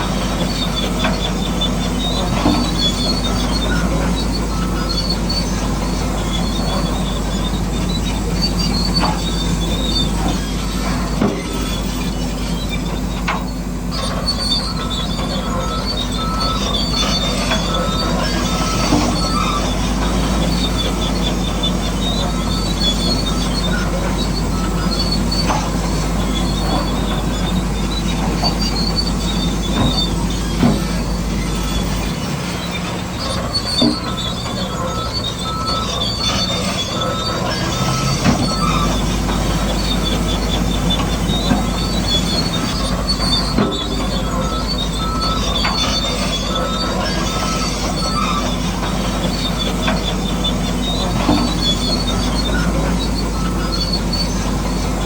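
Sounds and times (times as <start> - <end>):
model bulldozer motor hum: 0.0 - 55.0
tracks squealing and squeaking: 0.0 - 55.0
rapid beeping: 14.0 - 55.0.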